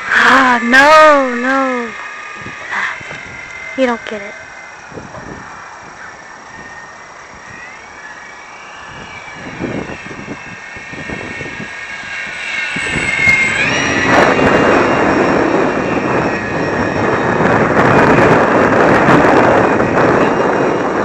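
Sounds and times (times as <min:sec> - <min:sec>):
electric motor and propeller whining: 0:00.0 - 0:21.0
wind on microphone: 0:00.0 - 0:21.0
loud rushing noise: 0:08.4 - 0:21.0.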